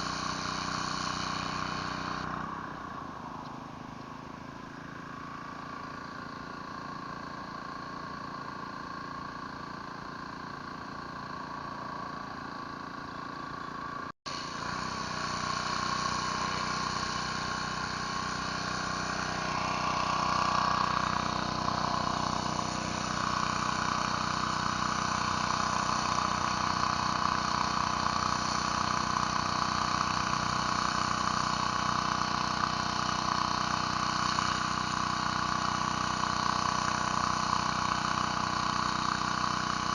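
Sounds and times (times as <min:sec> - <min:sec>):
pressure washer engine running: 0:00.0 - 0:39.9
water spray hissing: 0:14.4 - 0:29.3.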